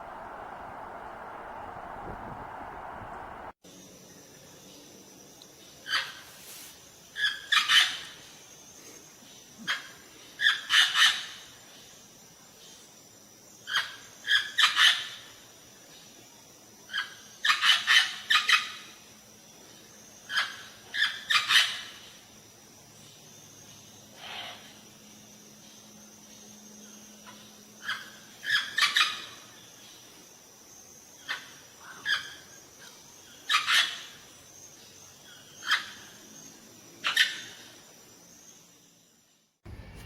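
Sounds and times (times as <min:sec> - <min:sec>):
bird calling: 0:00.0 - 0:03.6.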